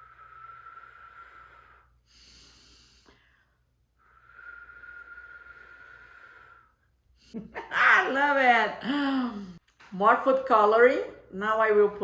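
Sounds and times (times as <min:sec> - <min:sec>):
person blowing out breaths: 0:00.0 - 0:07.3
short hissing breath: 0:04.0 - 0:06.8.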